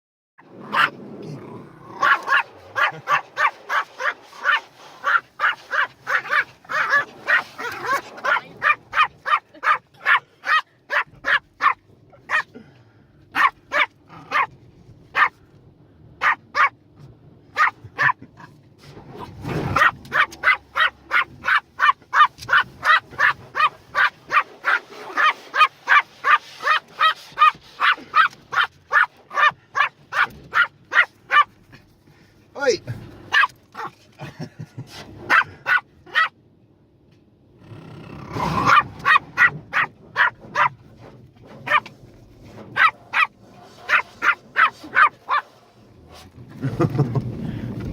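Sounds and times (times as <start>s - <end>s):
dog barking: 0.7s - 1.0s, 2.0s - 12.5s, 13.3s - 14.5s, 15.1s - 15.4s, 16.2s - 16.8s, 17.6s - 18.2s, 19.7s - 31.5s, 33.3s - 33.9s, 35.3s - 36.4s, 38.6s - 40.8s, 41.6s - 41.9s, 42.7s - 45.6s
car wash noise: 2.0s - 15.6s, 16.2s - 36.0s, 38.6s - 47.9s.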